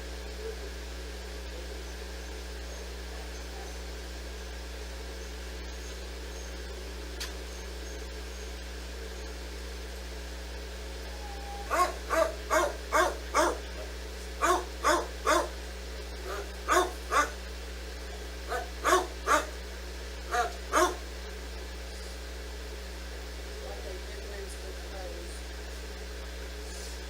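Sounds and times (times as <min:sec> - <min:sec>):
dog barking: 0:02.6 - 0:03.9, 0:11.6 - 0:15.6, 0:16.2 - 0:17.4, 0:18.1 - 0:19.6, 0:20.3 - 0:21.1.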